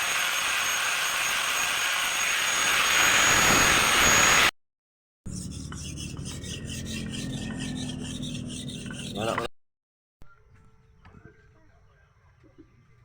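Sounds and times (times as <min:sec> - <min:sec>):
power grinder whining: 0:00.0 - 0:04.5.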